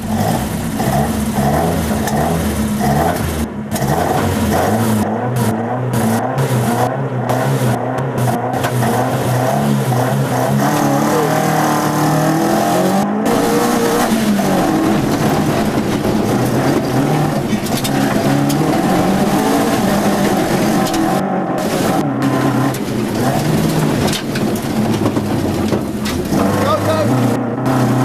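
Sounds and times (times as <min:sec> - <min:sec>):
rally car engine revving: 0:00.0 - 0:28.0
deep rumble: 0:13.0 - 0:27.7.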